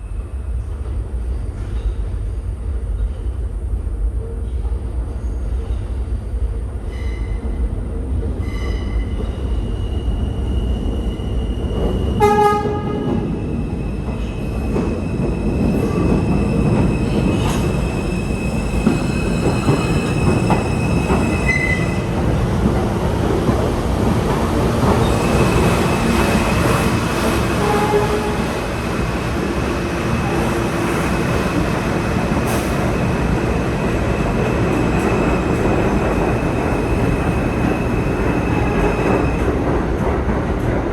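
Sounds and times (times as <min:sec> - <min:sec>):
high whine of train: 0:00.0 - 0:40.9
subway train rumbling: 0:00.0 - 0:40.9
train horn blast: 0:12.2 - 0:13.2, 0:27.4 - 0:28.7.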